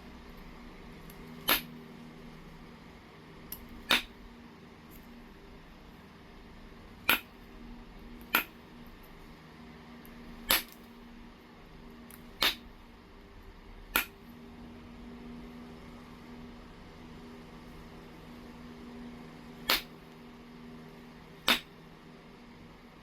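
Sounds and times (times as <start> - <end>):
stone knapping clicks: 1.1 - 1.7, 3.5 - 4.2, 7.0 - 7.3, 8.2 - 8.6, 10.4 - 10.9, 12.1 - 12.7, 13.9 - 14.2, 19.6 - 19.9, 21.4 - 21.7.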